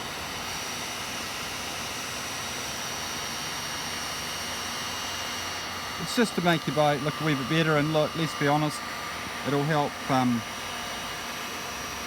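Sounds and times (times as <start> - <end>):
heat gun blowing: 5.6 - 10.7.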